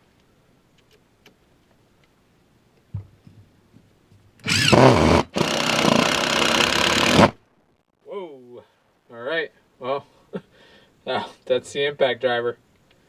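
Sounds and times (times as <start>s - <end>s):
impact driver driving a screw: 4.4s - 7.4s.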